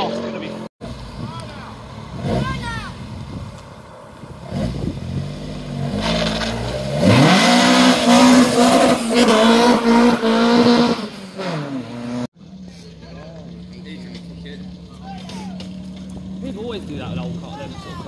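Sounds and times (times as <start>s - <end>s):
car engine revving hard: 4.4s - 12.3s.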